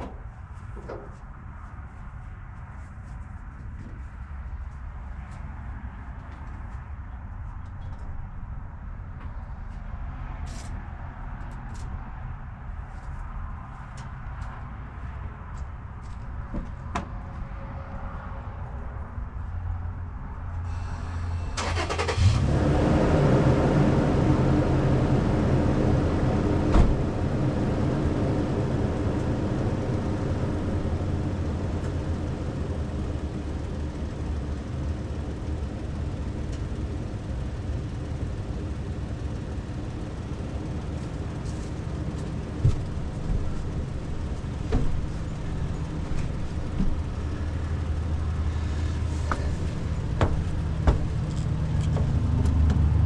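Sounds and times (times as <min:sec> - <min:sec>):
diesel engine starting and running: 0:20.4 - 0:53.0.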